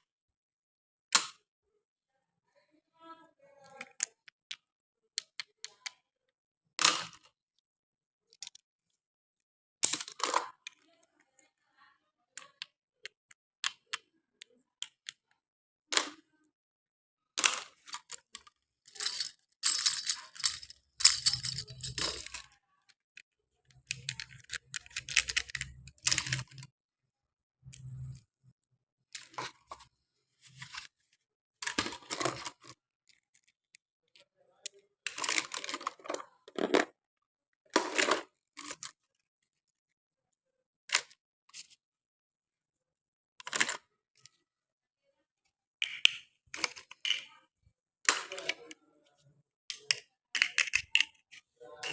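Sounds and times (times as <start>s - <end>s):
plastic toy clicks and taps: 1.2s - 1.4s, 49.7s - 51.2s.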